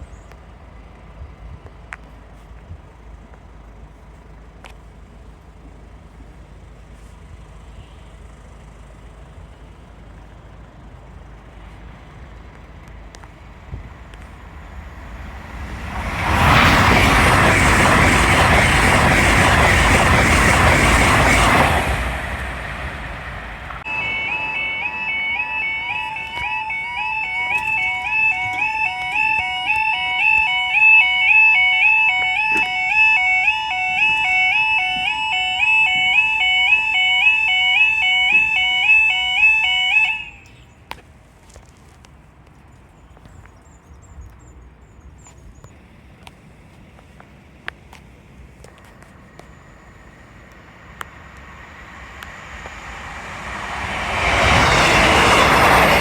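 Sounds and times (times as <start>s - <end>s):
train wheels clattering on rails: 12.4s - 23.9s, 50.2s - 56.0s
level crossing alarm: 23.8s - 40.5s.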